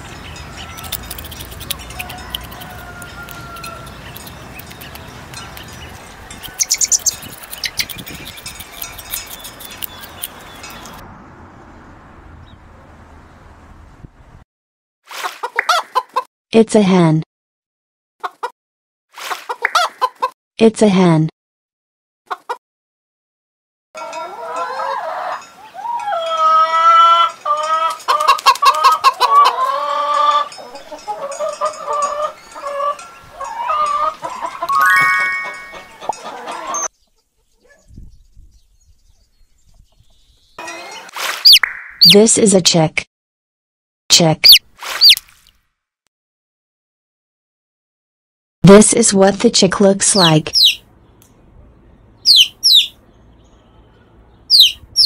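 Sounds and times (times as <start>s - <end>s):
birds chirping: 0.0s - 11.0s, 29.0s - 42.4s, 44.4s - 45.2s, 50.1s - 55.0s
hen clucking: 0.7s - 11.0s, 19.5s - 20.3s, 22.3s - 22.6s, 24.0s - 34.8s, 35.4s - 37.7s, 50.2s - 50.8s, 52.3s - 52.9s
hens clucking and cackling: 15.3s - 16.3s, 18.2s - 18.5s, 19.5s - 20.3s, 22.3s - 22.6s, 24.0s - 34.8s, 35.4s - 36.9s.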